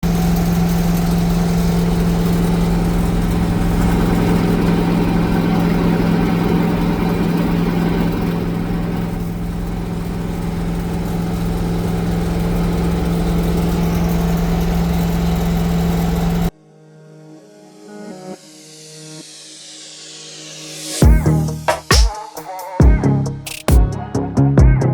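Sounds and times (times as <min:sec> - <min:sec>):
loud engine through open headers: 0:00.0 - 0:16.5.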